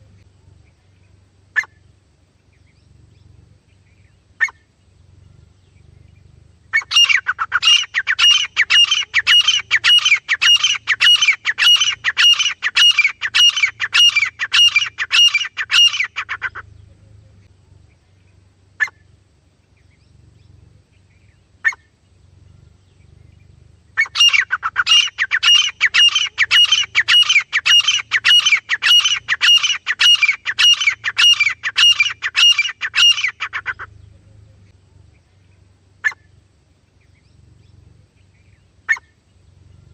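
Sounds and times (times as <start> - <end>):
francolin calling harsh notes: 6.8 - 16.6, 24.0 - 33.9.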